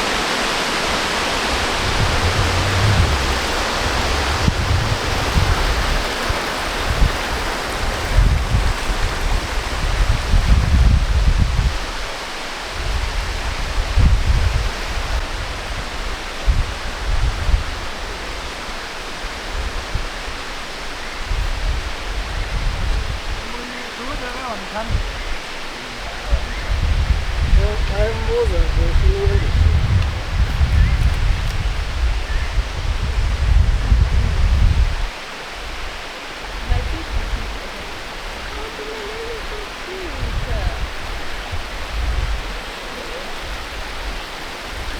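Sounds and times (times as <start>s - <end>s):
low rumbles on microphone: 0.0s - 12.0s, 24.8s - 35.1s, 36.6s - 44.9s
falling water rushing: 0.0s - 44.9s
low rumble: 1.3s - 5.9s.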